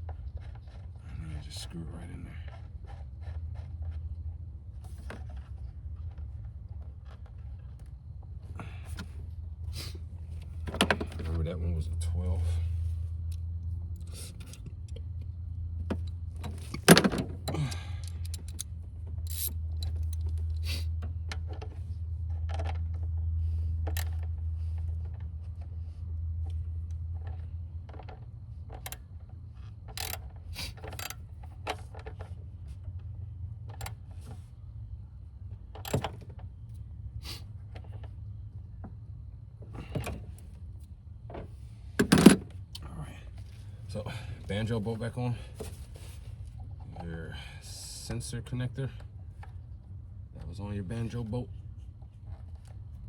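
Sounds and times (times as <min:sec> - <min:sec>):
steady low hum: 0:00.0 - 0:53.0
metal tools clinking on bolts: 0:15.9 - 0:20.6.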